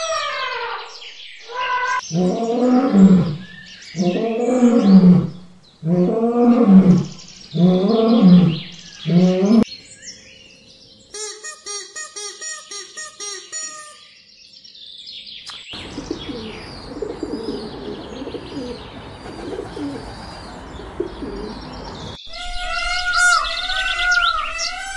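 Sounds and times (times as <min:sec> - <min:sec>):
lion roaring: 0:02.1 - 0:09.7.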